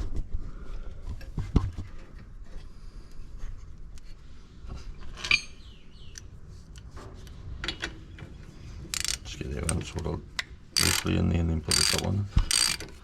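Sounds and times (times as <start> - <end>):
metal tools clinking and knocking: 9.0 - 9.2, 10.8 - 11.1, 11.7 - 13.0.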